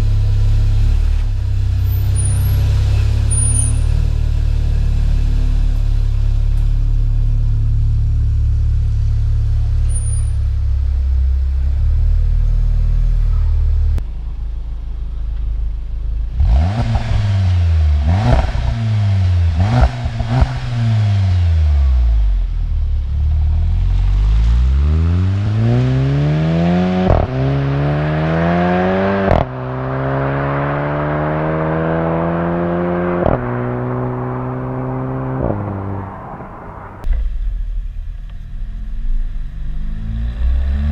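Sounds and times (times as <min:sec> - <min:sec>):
car engine revving and accelerating: 0:16.3 - 0:37.1, 0:38.8 - 0:40.9.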